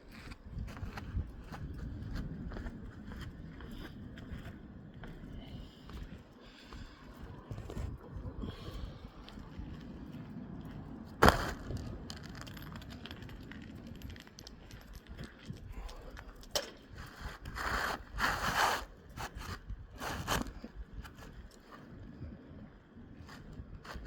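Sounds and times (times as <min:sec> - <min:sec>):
scraping and rustling of shingles: 0:11.1 - 0:22.0.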